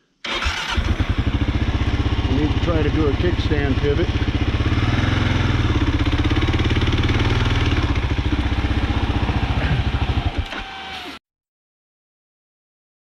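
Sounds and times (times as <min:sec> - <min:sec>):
motorcycle engine idling: 0:00.4 - 0:10.6
engine shutting off click: 0:07.5 - 0:11.2.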